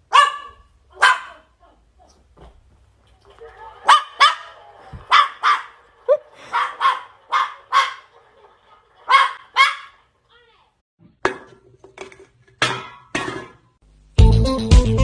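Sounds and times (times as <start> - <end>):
dog barking: 0.0 - 1.8, 3.8 - 8.1, 9.0 - 10.0.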